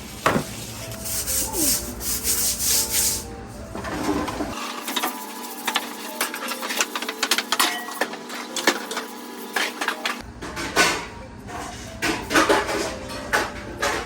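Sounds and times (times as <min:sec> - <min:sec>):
sponge scrubbing dishes: 0:00.0 - 0:07.0
dishware clicks and clinks: 0:05.8 - 0:11.1.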